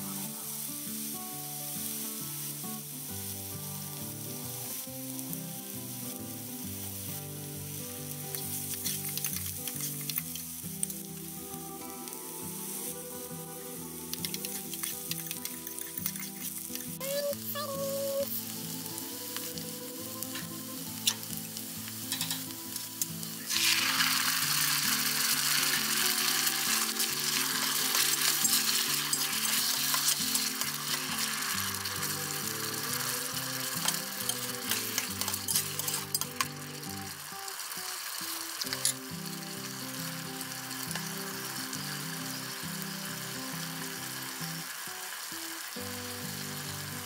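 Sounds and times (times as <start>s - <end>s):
food sizzling in hot oil: 0.0s - 47.0s
stirring clicks: 14.1s - 17.0s.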